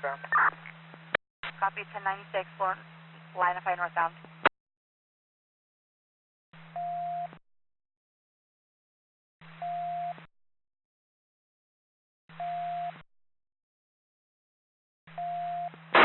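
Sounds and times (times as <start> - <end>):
police scanner radio transmissions: 0.0 - 0.7, 3.4 - 4.2
radio hiss and hum: 0.0 - 4.4.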